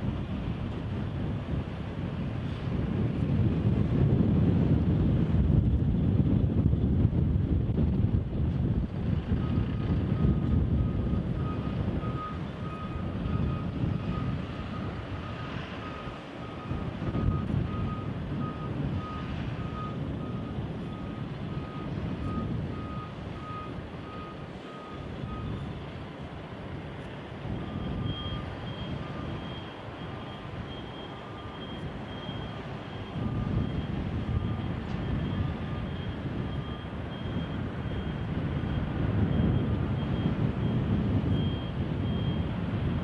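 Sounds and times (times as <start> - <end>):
wind buffeting microphone: 0.0 - 43.0
reversing alarm beeping: 9.4 - 25.9, 27.5 - 42.6.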